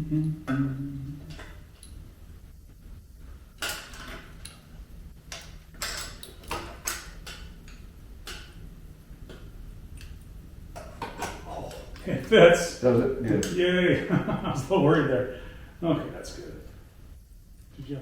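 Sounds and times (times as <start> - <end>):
faint low hum: 0.0 - 18.0
metal tools clinking: 5.3 - 7.2.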